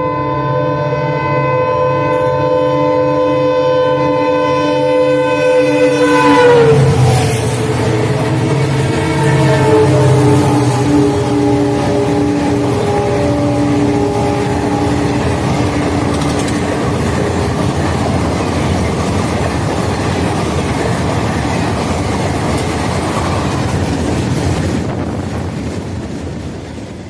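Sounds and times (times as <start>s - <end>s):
locomotive horn: 0.0s - 18.2s
train passing at full speed: 0.0s - 27.0s.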